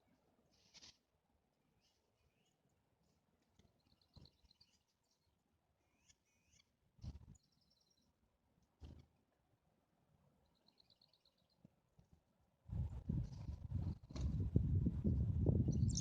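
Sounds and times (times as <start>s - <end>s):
small birds chirping: 3.4s - 8.2s, 10.4s - 11.7s, 15.6s - 16.0s.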